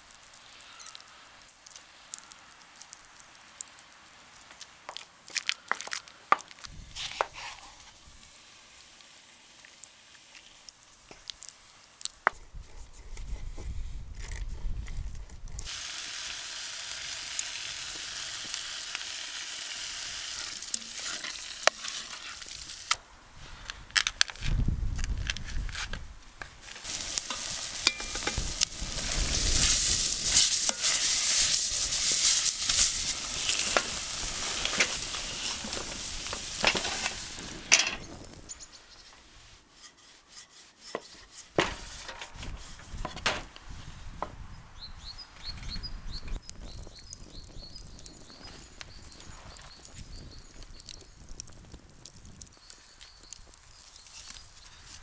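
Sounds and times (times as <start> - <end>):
food sizzling in a pan: 6.7 - 12.0, 15.6 - 23.0, 26.8 - 38.6
utensil clicking and scraping: 20.3 - 23.0, 25.1 - 38.4.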